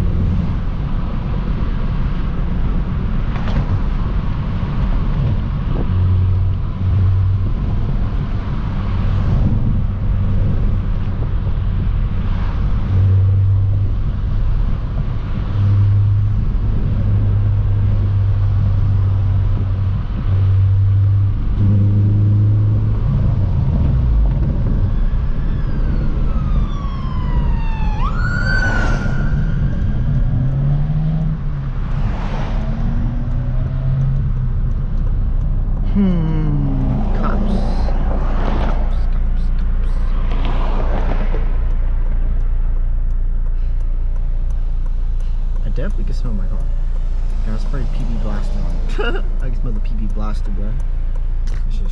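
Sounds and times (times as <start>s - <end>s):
car engine driving: 0.0s - 51.9s
police siren: 24.7s - 30.6s.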